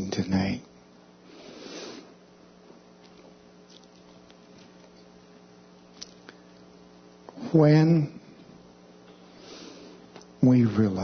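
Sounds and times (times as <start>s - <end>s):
low electrical hum: 0.0s - 11.0s
soft breath-like rush: 1.2s - 2.2s, 9.2s - 10.1s.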